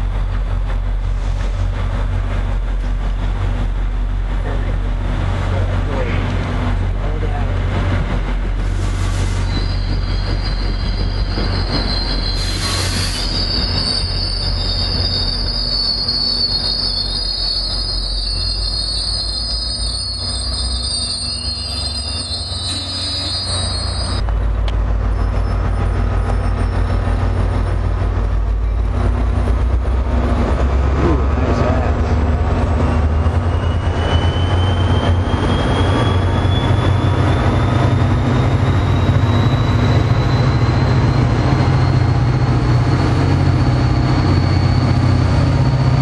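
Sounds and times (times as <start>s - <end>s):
high-pitched train brake squeal: 8.6s - 24.2s, 25.0s - 27.7s, 32.8s - 46.0s.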